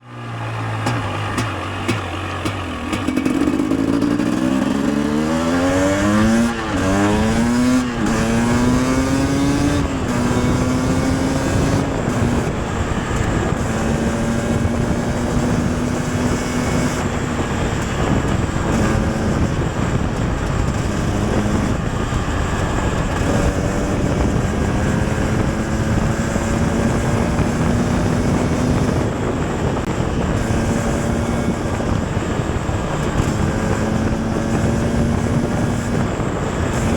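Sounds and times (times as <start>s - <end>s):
two-stroke motorcycle engine revving: 0.0s - 36.9s.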